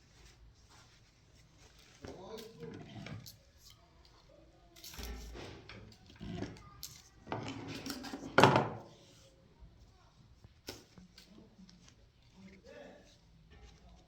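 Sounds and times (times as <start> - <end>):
hard objects clattering and scraping: 4.9 - 8.9.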